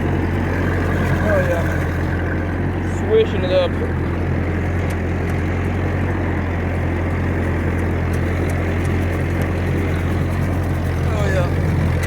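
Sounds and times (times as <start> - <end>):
tractor running under load: 0.0 - 12.0.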